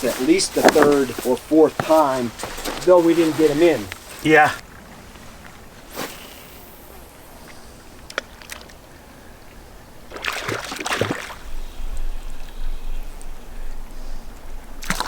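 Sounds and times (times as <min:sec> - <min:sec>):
fish splashing in water: 0:10.1 - 0:11.4.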